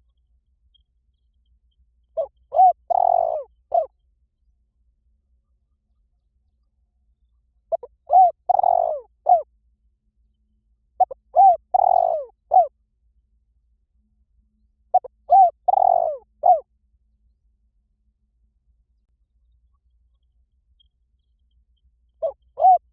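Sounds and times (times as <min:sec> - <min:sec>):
dove cooing: 0:02.2 - 0:03.9, 0:07.7 - 0:09.5, 0:11.0 - 0:12.7, 0:14.9 - 0:16.7, 0:22.2 - 0:22.9.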